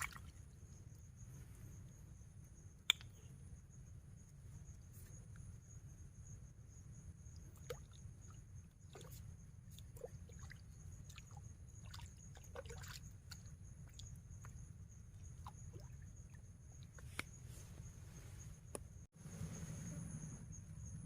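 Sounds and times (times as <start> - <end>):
high insect trill: 0.0 - 21.0
water drips: 9.8 - 14.6.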